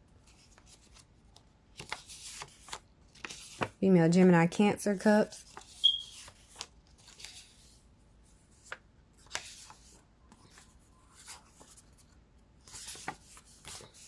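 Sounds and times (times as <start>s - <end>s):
cards rustling and sliding: 1.7s - 3.8s, 5.4s - 7.8s, 8.5s - 14.0s.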